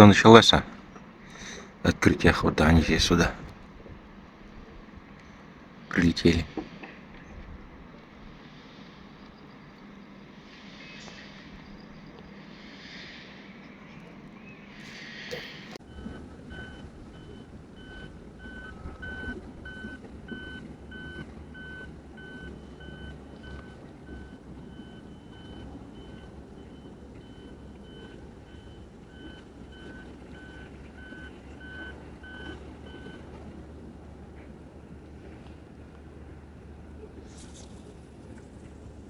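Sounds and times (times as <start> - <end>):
low engine rumble: 0.0 - 39.0
reversing alarm beeping: 13.5 - 34.2.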